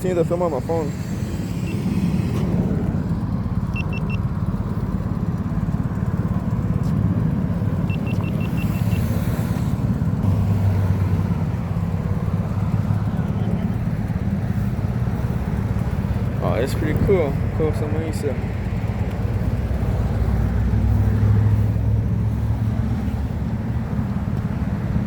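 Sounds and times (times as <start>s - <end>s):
road traffic rumble: 0.0s - 25.0s
short high electronic beeps: 3.7s - 4.2s, 7.9s - 9.0s.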